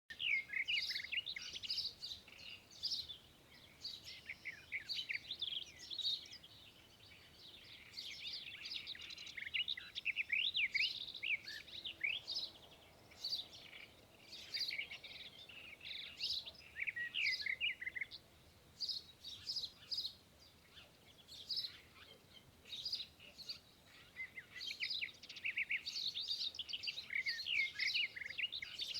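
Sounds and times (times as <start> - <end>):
small birds chirping and twittering: 0.1 - 28.9.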